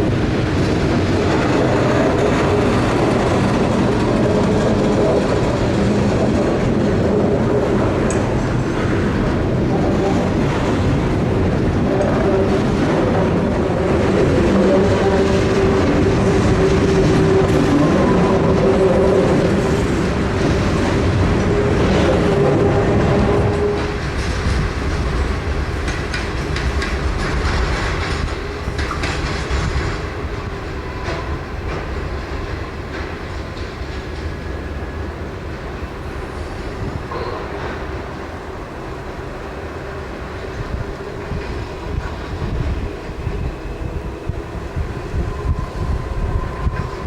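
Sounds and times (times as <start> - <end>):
freight train rumbling: 0.0 - 47.0
wheels clicking over rail joints: 23.0 - 34.4.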